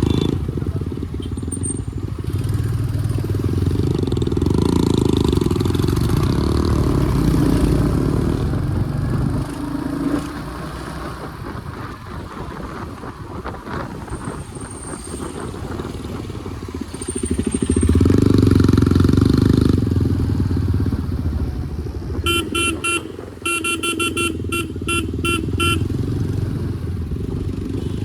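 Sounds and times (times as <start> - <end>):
motorcycle engine and road noise: 0.0 - 28.0
vehicle horn short beeps: 22.2 - 26.0.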